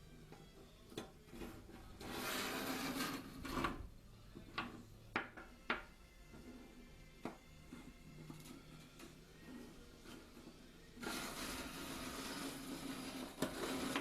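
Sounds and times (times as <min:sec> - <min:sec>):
scraping rustle of small objects: 0:01.4 - 0:03.8, 0:09.4 - 0:14.0.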